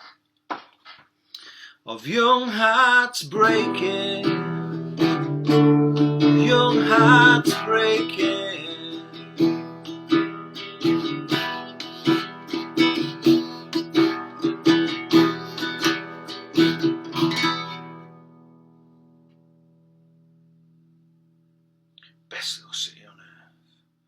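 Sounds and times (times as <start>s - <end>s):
acoustic guitar strumming: 2.5s - 21.2s.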